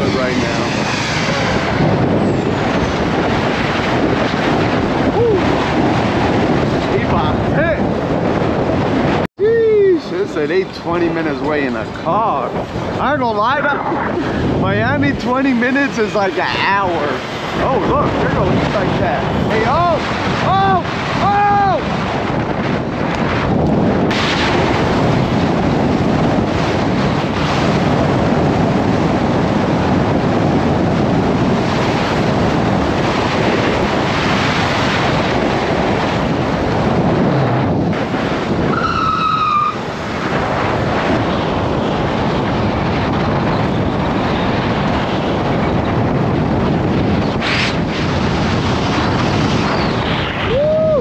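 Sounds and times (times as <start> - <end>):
road and traffic noise: 0.0 - 7.0, 10.0 - 21.0
wind rushing over microphone: 0.0 - 51.0.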